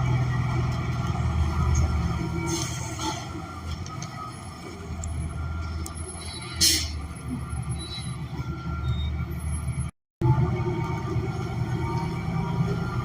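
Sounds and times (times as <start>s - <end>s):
bus engine humming: 0.0s - 13.0s.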